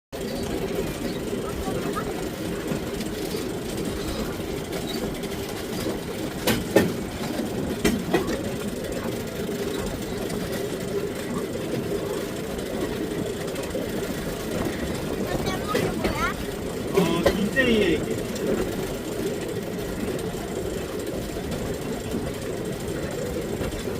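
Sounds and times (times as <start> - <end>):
steel wheels rumbling on rails: 0.1 - 23.9
sharp clacks: 2.7 - 8.8.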